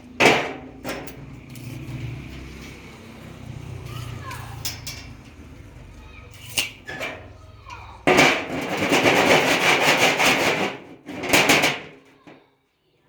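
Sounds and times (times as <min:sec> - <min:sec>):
loud rasping scrape: 0:08.3 - 0:10.9.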